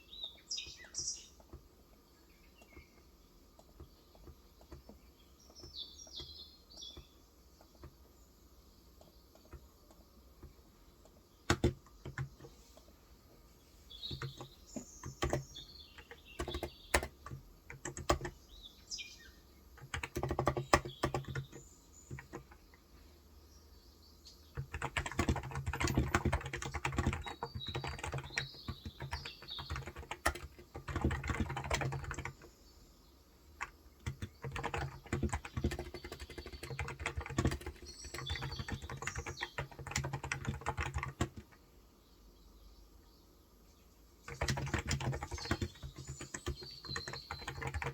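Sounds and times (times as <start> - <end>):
faint birds chirping: 0.0 - 47.9
keyboard typing: 1.4 - 1.8, 2.5 - 8.1, 9.0 - 12.6, 14.0 - 18.4, 19.8 - 22.8, 24.5 - 32.5, 33.6 - 41.6, 44.2 - 47.9.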